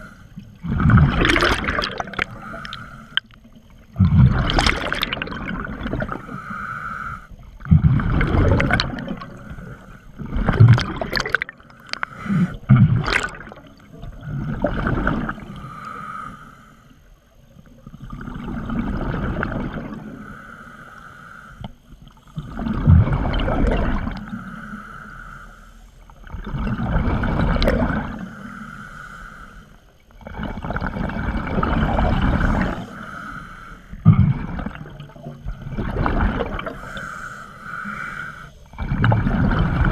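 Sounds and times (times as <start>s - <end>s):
regulator hiss on inhale: 0.0s - 0.6s, 2.2s - 3.4s, 6.0s - 7.6s, 9.1s - 10.2s, 11.7s - 12.7s, 15.4s - 17.2s, 20.1s - 22.4s, 24.2s - 26.2s, 28.2s - 30.2s, 32.2s - 34.1s, 36.6s - 38.8s
exhaled bubbles gurgling: 0.0s - 15.9s, 17.2s - 20.4s, 22.1s - 24.5s, 26.0s - 28.6s, 30.1s - 39.9s.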